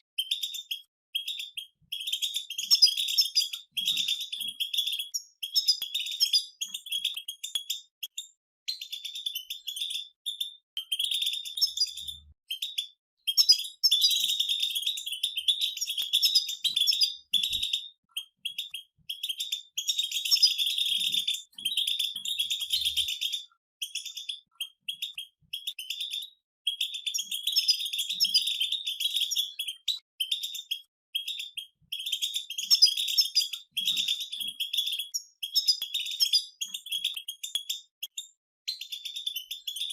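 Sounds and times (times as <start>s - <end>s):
finches twittering: 0.2s - 7.8s, 8.8s - 26.2s.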